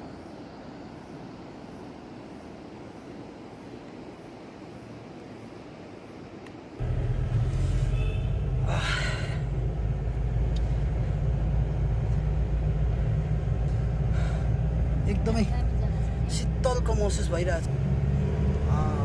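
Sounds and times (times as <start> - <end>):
moving vehicle rumble: 6.8 - 19.0.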